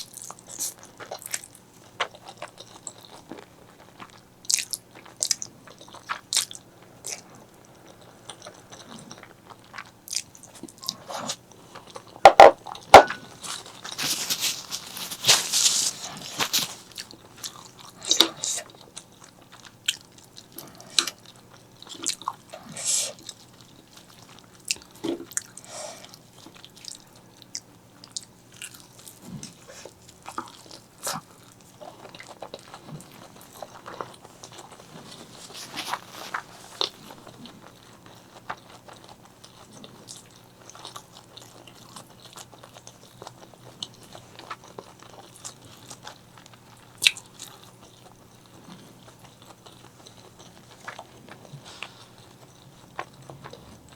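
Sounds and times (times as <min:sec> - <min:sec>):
chewing and biting food: 0:00.0 - 0:53.9.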